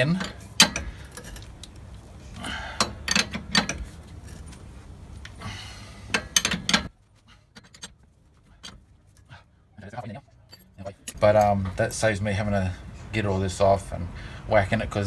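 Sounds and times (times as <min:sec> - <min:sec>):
metal tools clinking and scraping: 0:00.0 - 0:04.7, 0:06.1 - 0:09.4, 0:10.0 - 0:11.9.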